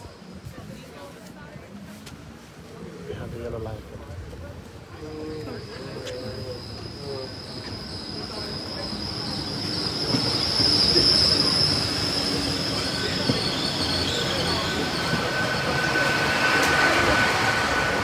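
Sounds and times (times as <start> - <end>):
train running on rails: 0.0 - 18.0
low squeal tone: 5.0 - 18.0
high wheel squeal: 5.2 - 18.0.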